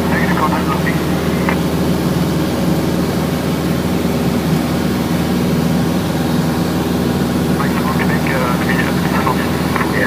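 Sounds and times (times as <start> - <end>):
aircraft engine droning: 0.0 - 10.0.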